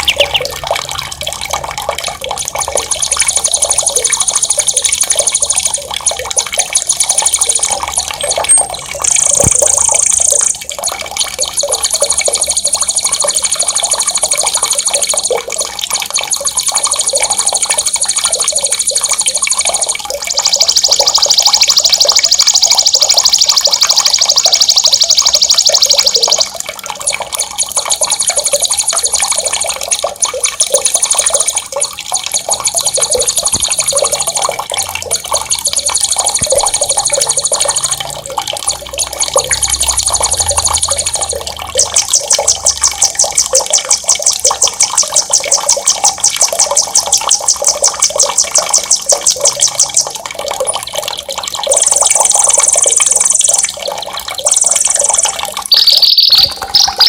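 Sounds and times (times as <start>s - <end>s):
songbird high trills: 0.0s - 0.6s, 54.5s - 57.0s
running water: 0.0s - 57.0s.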